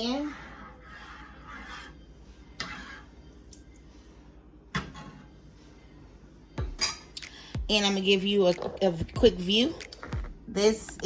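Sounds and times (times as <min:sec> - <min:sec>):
utensil scraping pot: 0:00.0 - 0:03.4
utensil stirring soup in pot: 0:00.0 - 0:03.8.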